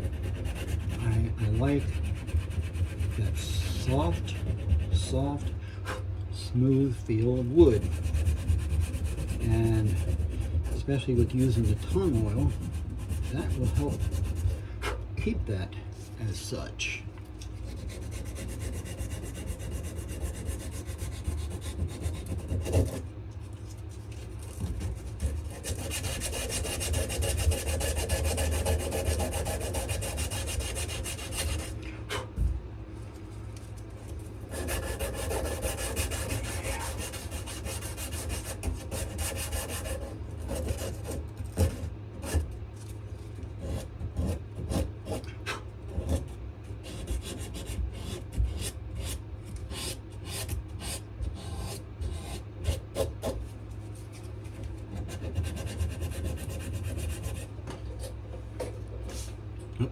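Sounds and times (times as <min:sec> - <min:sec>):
sandpaper rubbing on wood: 0:00.0 - 0:05.5, 0:06.6 - 0:14.6, 0:17.6 - 0:23.0, 0:24.4 - 0:31.8, 0:34.4 - 0:42.4, 0:46.9 - 0:53.4, 0:55.0 - 0:57.5.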